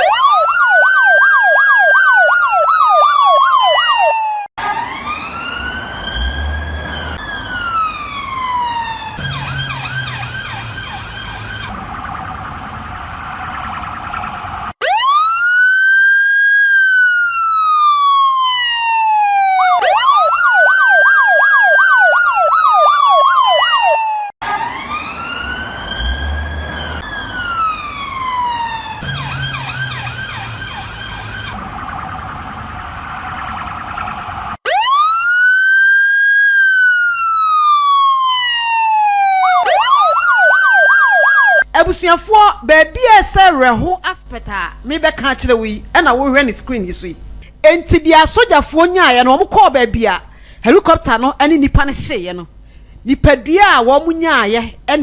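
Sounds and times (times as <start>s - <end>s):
emergency siren wailing: 0.0s - 41.8s.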